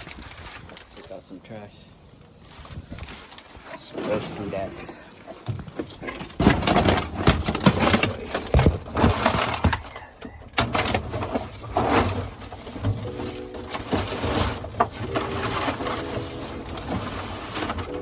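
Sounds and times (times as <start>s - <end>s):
plastic bags rustling: 0.0s - 18.0s
knocks and bumps: 5.4s - 18.0s.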